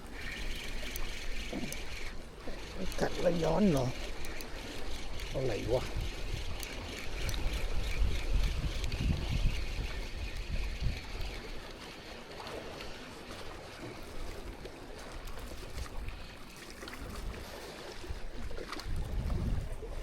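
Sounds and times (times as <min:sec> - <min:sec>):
water washing on shore: 0:00.0 - 0:20.0
wind rumbling on microphone: 0:03.0 - 0:11.8, 0:15.3 - 0:20.0.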